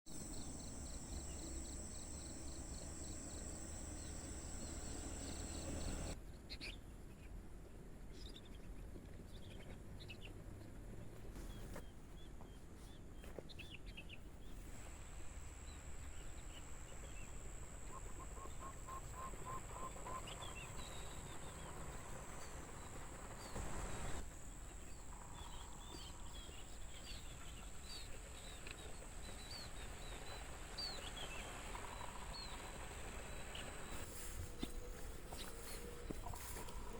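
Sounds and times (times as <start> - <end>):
birds chirping: 0.1 - 6.2, 15.6 - 36.9.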